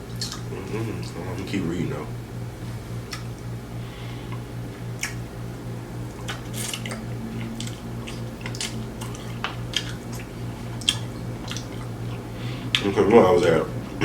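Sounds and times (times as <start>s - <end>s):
chewing crispy food: 0.0s - 1.6s, 3.0s - 3.5s, 5.9s - 13.5s
steady low hum: 0.0s - 14.0s.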